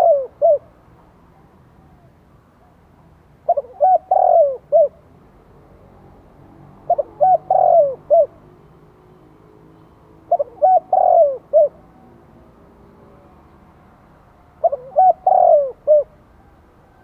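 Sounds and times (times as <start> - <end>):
dove cooing: 0.0 - 0.8, 3.4 - 5.0, 6.8 - 8.5, 10.3 - 12.0, 14.6 - 17.0.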